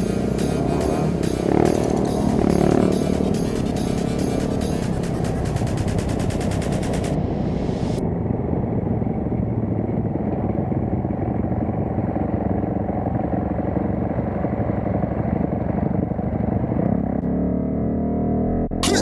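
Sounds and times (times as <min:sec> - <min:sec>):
dirt bike engine running: 0:00.0 - 0:07.2.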